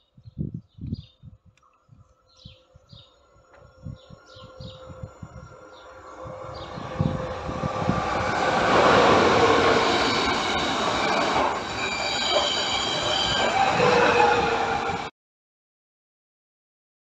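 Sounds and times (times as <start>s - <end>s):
high-pitched whining tones: 2.0s - 15.1s
train passing at speed: 3.2s - 15.1s.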